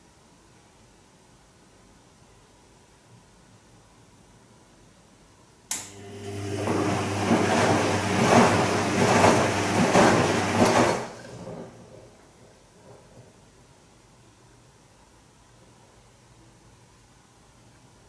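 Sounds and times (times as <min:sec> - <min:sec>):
washing machine motor: 0:05.7 - 0:12.2
wet laundry and water swishing: 0:06.4 - 0:12.0.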